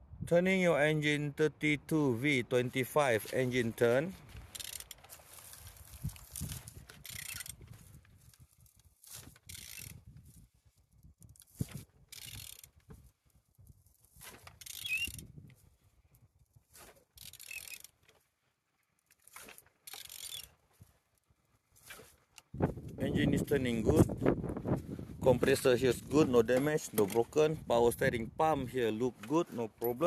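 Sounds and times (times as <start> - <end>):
ratchet wrench clicking: 4.5 - 5.0, 6.4 - 7.6, 9.5 - 10.0, 12.1 - 12.8, 14.6 - 15.3, 17.2 - 17.9, 19.9 - 20.5.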